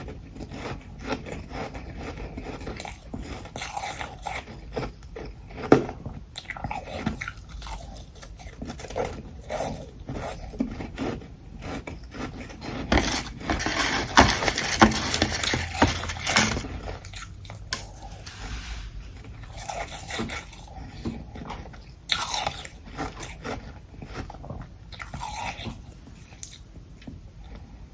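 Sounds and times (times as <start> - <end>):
ice being chewed: 0.0 - 18.0, 19.6 - 27.7.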